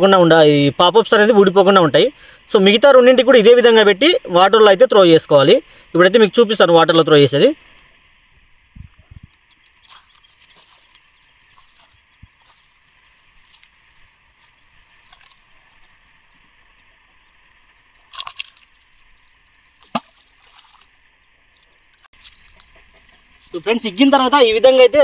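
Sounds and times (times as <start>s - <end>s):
bird chirping: 9.5s - 10.8s, 11.5s - 12.7s, 14.0s - 14.8s, 18.2s - 18.8s.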